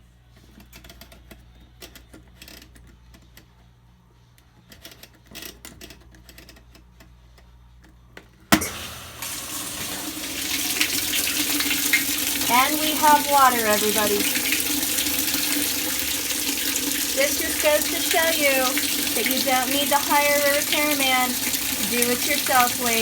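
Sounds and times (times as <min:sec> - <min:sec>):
water rushing into washing machine: 0:08.6 - 0:23.0.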